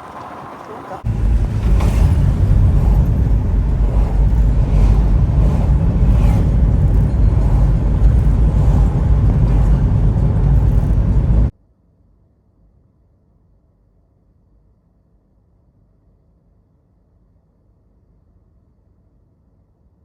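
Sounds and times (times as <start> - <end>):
wind buffeting microphone: 0.0 - 11.5.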